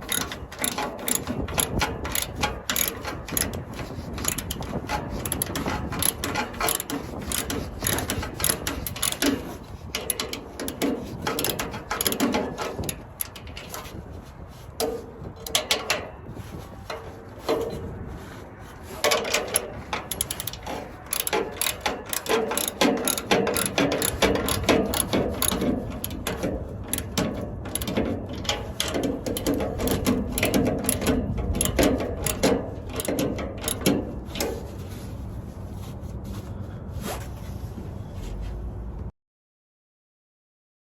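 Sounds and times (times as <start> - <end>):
ratchet wrench clicking: 0.0 - 14.0, 15.4 - 16.0, 19.0 - 34.6.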